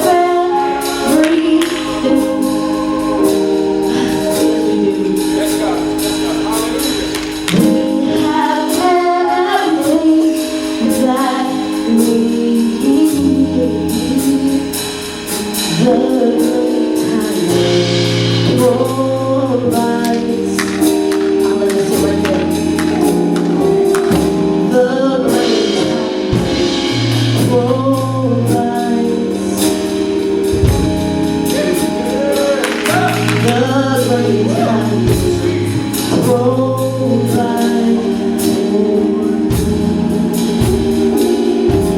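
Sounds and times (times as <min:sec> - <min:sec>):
band playing: 0:00.0 - 0:41.9
voices singing gospel song: 0:00.0 - 0:41.9
drum hits: 0:07.0 - 0:08.0, 0:20.0 - 0:24.7, 0:32.6 - 0:34.2
held bass notes: 0:17.4 - 0:41.9.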